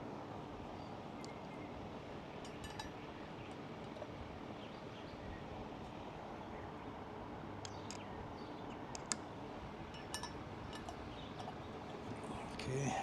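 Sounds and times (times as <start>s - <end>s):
low background hum: 0.0s - 13.0s
light clicks of small parts: 8.9s - 9.3s.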